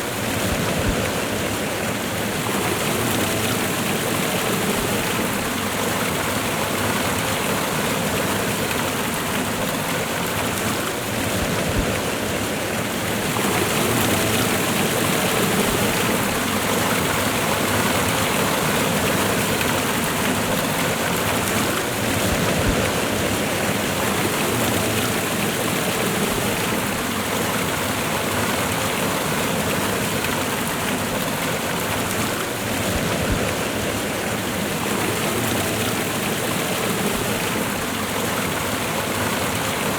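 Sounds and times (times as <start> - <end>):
waterfall and river rushing: 0.0 - 39.9.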